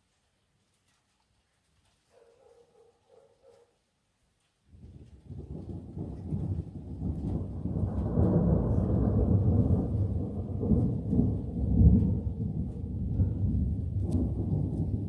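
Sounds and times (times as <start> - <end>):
rolling thunder: 4.9 - 15.0.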